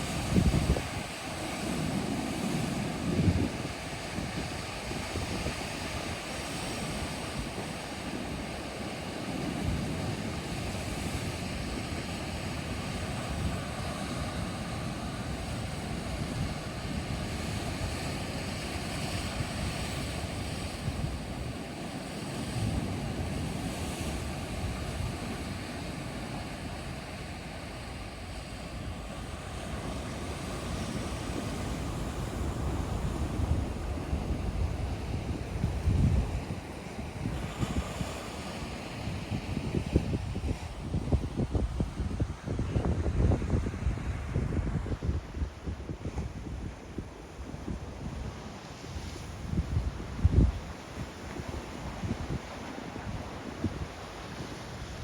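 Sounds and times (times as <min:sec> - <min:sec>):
rushing water: 0:00.0 - 0:45.4
wind: 0:00.0 - 0:55.0.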